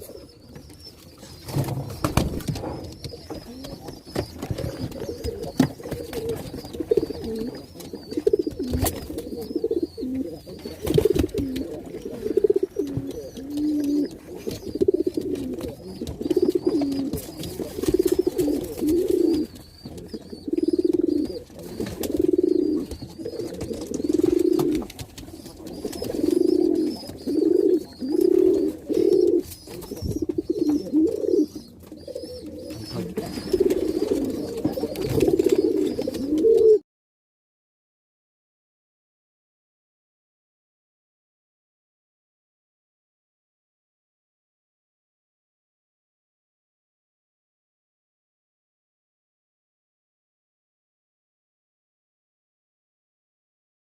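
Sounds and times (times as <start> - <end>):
pigeon cooing: 0.0 - 36.8
pigeon sharp clicks: 10.8 - 28.5.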